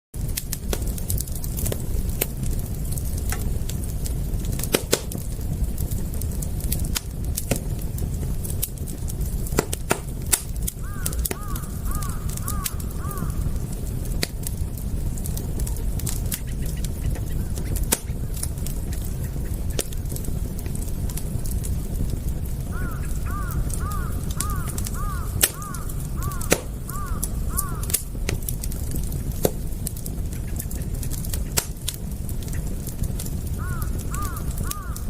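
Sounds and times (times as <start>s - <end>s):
campfire crackling: 0.2s - 35.0s
bird calling: 10.8s - 13.6s, 22.7s - 27.9s, 33.6s - 35.0s.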